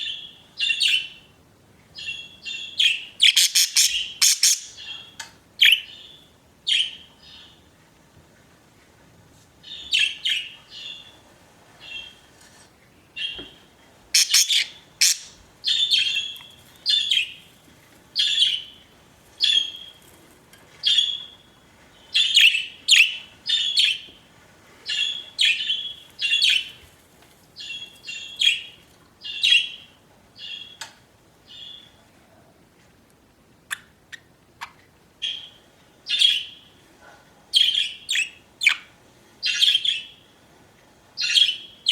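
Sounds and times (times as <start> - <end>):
budgerigars chirping: 2.0 - 7.5, 14.2 - 17.4, 41.2 - 41.9.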